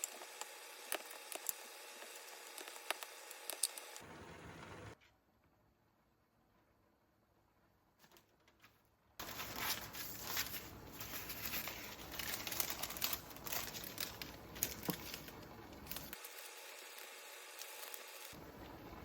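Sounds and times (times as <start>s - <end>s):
plastic packaging crinkling: 9.2s - 18.7s.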